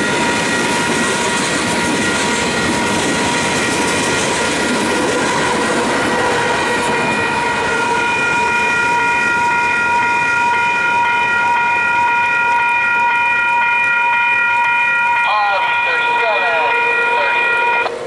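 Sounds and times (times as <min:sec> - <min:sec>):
train wheel clatter: 0:00.0 - 0:10.4
crossing warning bell ringing: 0:00.0 - 0:18.0.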